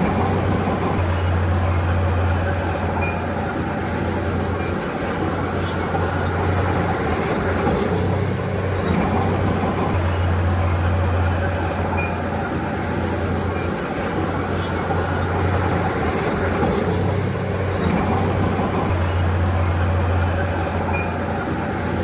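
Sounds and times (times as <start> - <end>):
bulldozer diesel engine running: 0.0 - 22.0.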